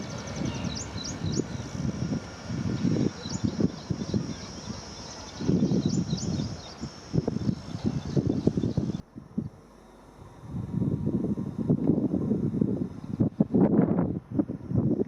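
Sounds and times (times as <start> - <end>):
small birds chirping: 0.0 - 9.6
wind buffeting microphone: 0.0 - 9.6, 10.2 - 15.0.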